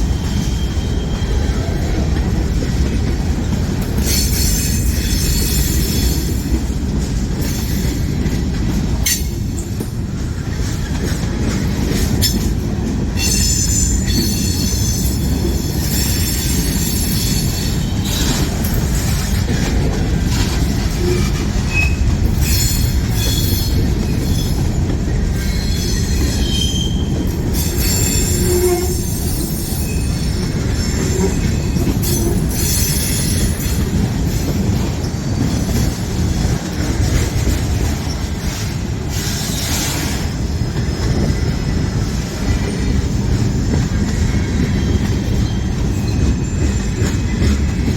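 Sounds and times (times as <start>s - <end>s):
freight train rumbling: 0.0s - 47.9s
wheels clacking on rail joints: 0.0s - 47.9s
wheel squeal: 25.4s - 33.8s, 44.1s - 47.4s.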